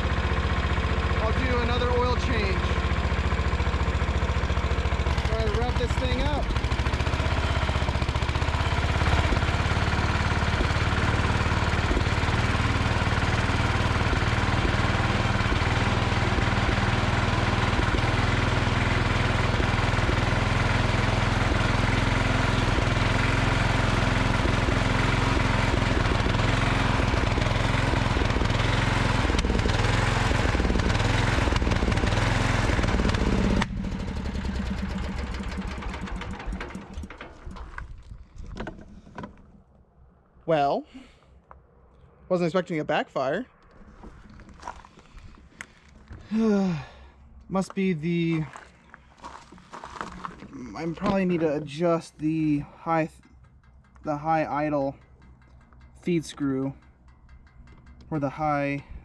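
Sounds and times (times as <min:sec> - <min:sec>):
small engine revving: 0:00.0 - 0:37.9
engine backfiring: 0:00.0 - 0:39.9, 0:43.5 - 0:59.0.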